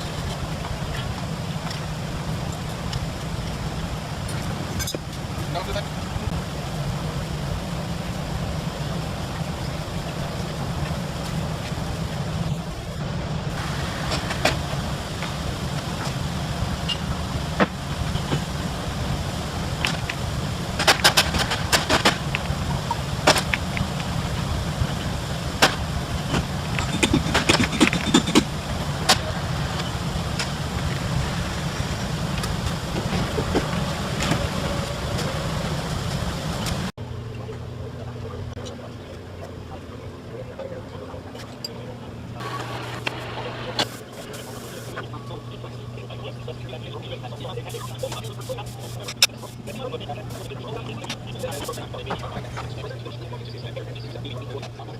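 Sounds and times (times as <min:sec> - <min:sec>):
workshop machinery humming: 0:00.0 - 0:54.9
machine humming: 0:41.8 - 0:54.9.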